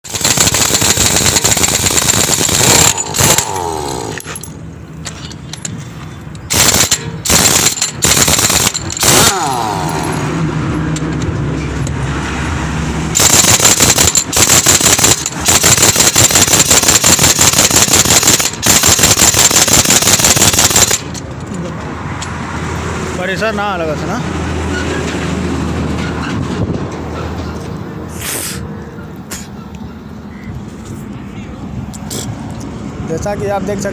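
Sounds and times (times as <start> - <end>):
pneumatic impact wrench rattling: 0.0 - 10.3, 13.2 - 21.5.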